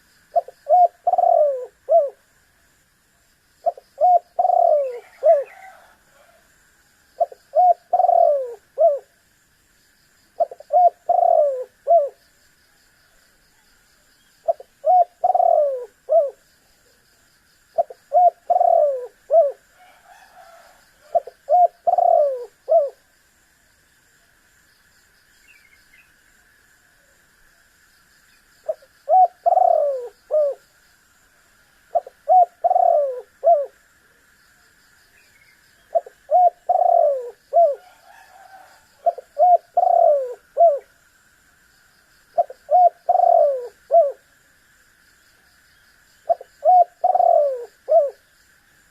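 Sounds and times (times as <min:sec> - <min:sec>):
dove cooing: 0:00.0 - 0:02.2, 0:03.6 - 0:06.4, 0:07.2 - 0:09.2, 0:10.4 - 0:12.2, 0:14.4 - 0:16.4, 0:17.8 - 0:23.1, 0:28.7 - 0:30.6, 0:31.9 - 0:33.8, 0:35.8 - 0:40.9, 0:42.4 - 0:44.2, 0:46.3 - 0:48.2
faint high hiss: 0:00.0 - 0:48.9.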